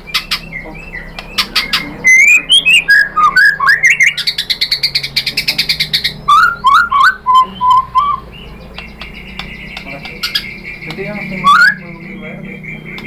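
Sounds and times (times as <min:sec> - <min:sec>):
bird rattling trill: 0:00.0 - 0:11.9
bird singing: 0:00.0 - 0:13.0
bird whistled notes: 0:00.0 - 0:13.0
sharp clicks: 0:01.1 - 0:01.8, 0:08.7 - 0:11.1.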